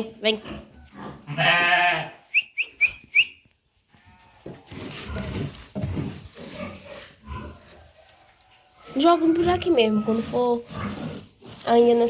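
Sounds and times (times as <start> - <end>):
goats and sheep bleating: 1.2 - 2.3
person whistling: 2.3 - 3.4.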